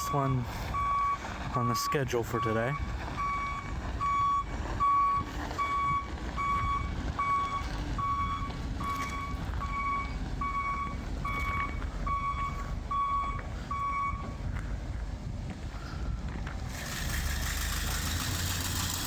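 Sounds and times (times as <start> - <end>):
truck backup alarm beeping: 0.0 - 14.5, 15.8 - 19.0
truck engine idling: 0.0 - 19.0.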